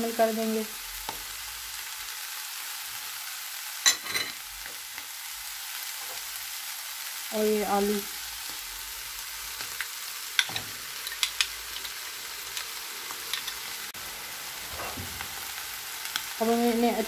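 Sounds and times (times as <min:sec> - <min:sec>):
meat sizzling in a frying pan: 0:00.0 - 0:17.0
crackles: 0:14.7 - 0:16.8.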